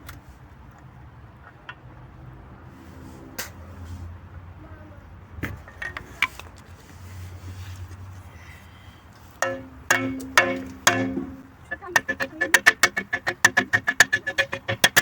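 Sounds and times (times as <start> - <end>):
low steady hum: 9.4 - 15.0
metallic tool knocks and clinks: 9.4 - 15.0
ringing metal strikes: 9.4 - 15.0.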